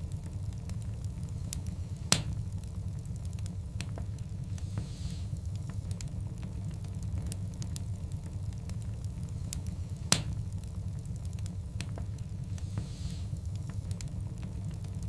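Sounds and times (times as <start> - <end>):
fire crackling: 0.0 - 15.0
low rumble of flames: 0.0 - 15.0
loud sharp fire pop: 2.1 - 2.4, 10.1 - 10.4.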